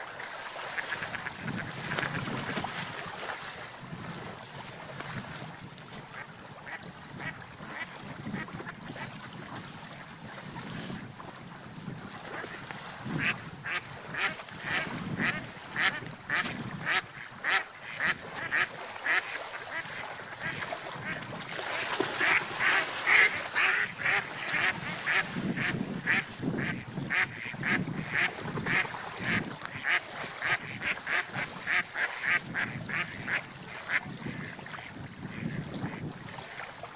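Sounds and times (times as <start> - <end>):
ducks quacking: 13.2 - 36.6.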